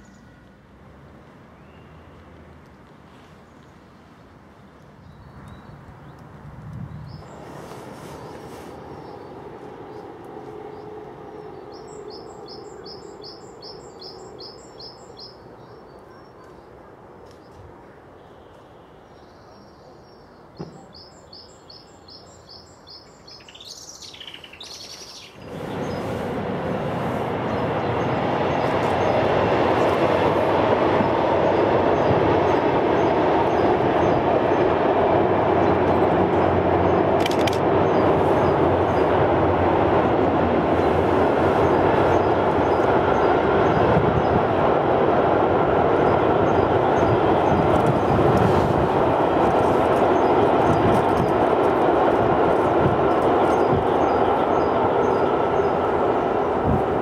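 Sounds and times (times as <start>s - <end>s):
freight train rolling: 6.3s - 16.1s, 25.4s - 57.0s
bird chirps: 18.3s - 26.2s.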